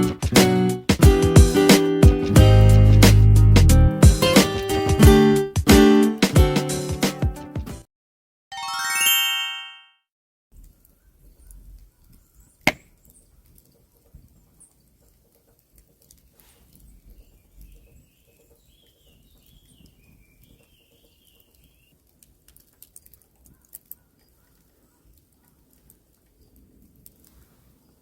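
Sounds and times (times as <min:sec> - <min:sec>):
sharp knock: 0:12.7 - 0:12.9.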